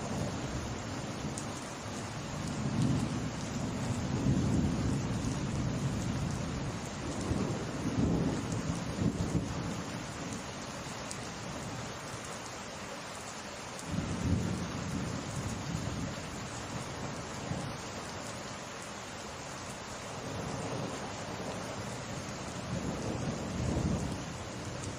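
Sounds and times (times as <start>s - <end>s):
rain falling: 0.0s - 24.9s
rolling thunder: 22.7s - 24.2s.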